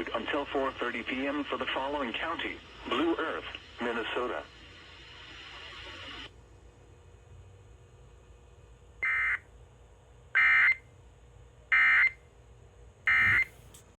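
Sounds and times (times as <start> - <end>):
harsh digital screeches: 13.1 - 13.8.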